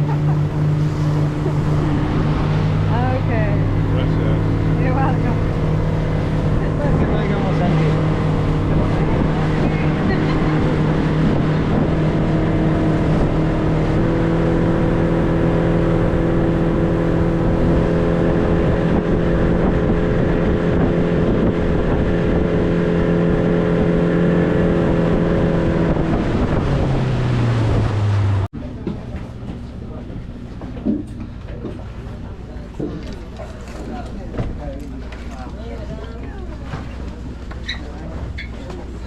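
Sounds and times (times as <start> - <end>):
wind on microphone: 0.0 - 28.5
motorboat engine running: 0.0 - 39.0.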